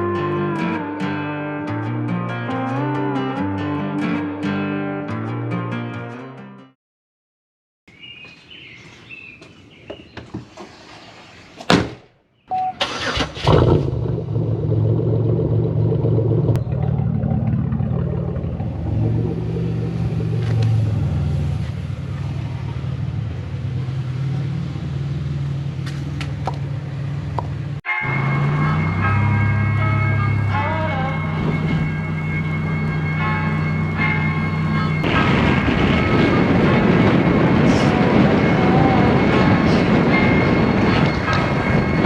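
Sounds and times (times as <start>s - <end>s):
car engine starting and running: 12.6s - 38.5s.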